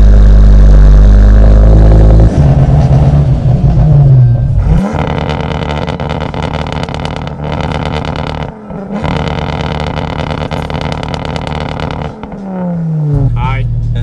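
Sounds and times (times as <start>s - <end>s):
car engine from inside cabin: 0.0s - 14.0s
engine idling with lumpy beat: 3.8s - 14.0s.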